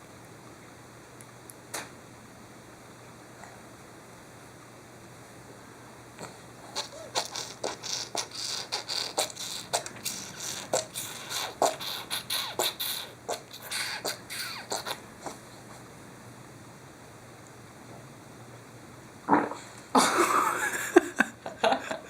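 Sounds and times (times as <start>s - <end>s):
baby making squeaky oinking noises: 6.7s - 15.0s.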